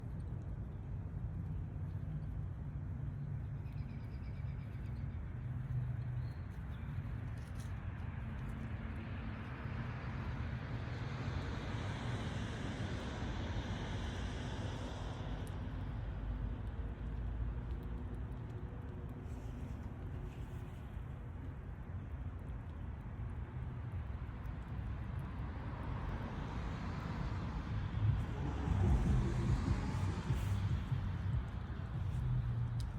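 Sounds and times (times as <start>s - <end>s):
road traffic rumble: 5.1s - 32.9s
car passing with tyre hiss: 9.7s - 16.4s, 25.5s - 32.9s
mechanical droning hum: 16.1s - 32.9s.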